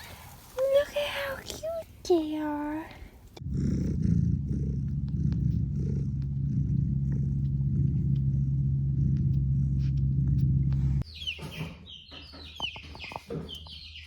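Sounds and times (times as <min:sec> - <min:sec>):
cat purring: 0:00.0 - 0:11.0.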